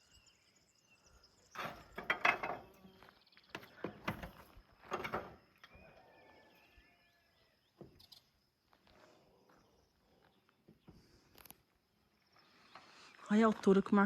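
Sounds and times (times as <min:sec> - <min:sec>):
bird chirps: 0:00.0 - 0:02.0, 0:05.6 - 0:08.4.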